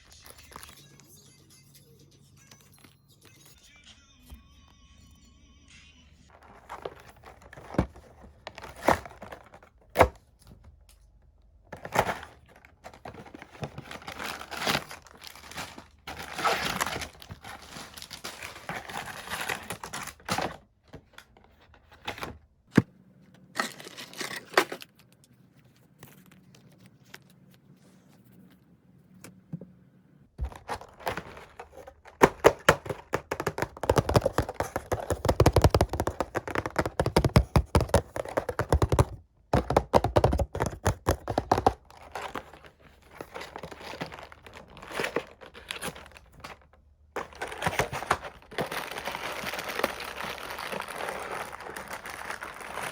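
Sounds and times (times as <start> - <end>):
plastic wrappers crinkling and tearing: 11.9 - 20.6, 23.6 - 27.5, 41.4 - 52.9.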